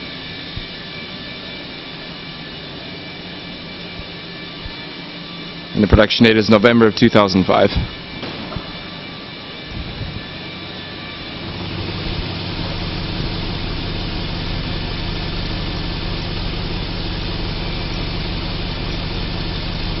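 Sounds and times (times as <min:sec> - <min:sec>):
car engine idling: 0:10.6 - 0:20.0.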